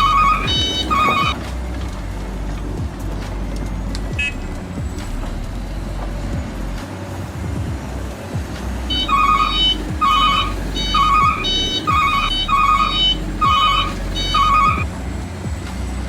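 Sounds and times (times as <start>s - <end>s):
low rumble: 0.0s - 16.0s
electronic warbling alert tone: 8.9s - 14.8s.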